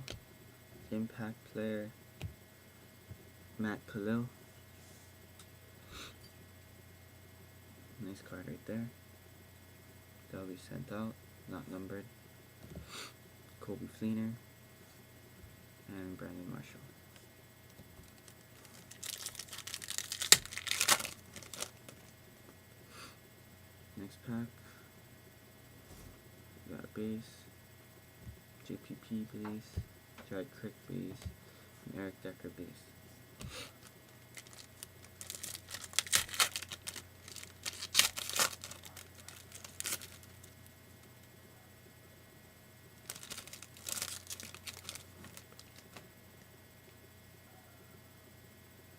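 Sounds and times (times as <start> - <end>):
wrapper snapping: 18.0 - 22.1, 33.8 - 40.3, 43.0 - 46.0
foil wrapper crinkling: 18.0 - 22.2, 33.8 - 40.7, 43.0 - 46.0.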